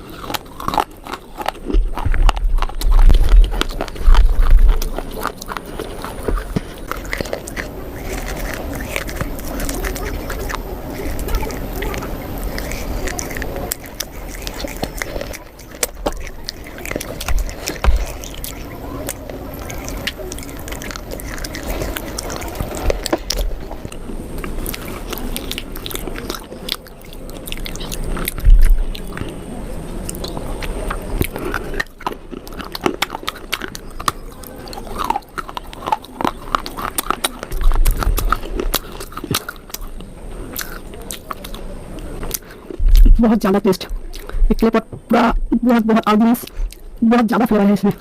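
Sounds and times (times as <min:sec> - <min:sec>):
crunchy biting and chewing: 0:00.0 - 0:48.0
heavy low thumps: 0:01.8 - 0:05.2, 0:28.4 - 0:29.0, 0:42.8 - 0:45.9.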